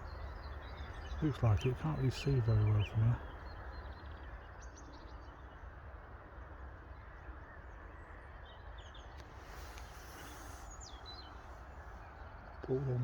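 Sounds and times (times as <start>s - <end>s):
faint bird calls: 0.0s - 4.4s, 9.2s - 13.0s.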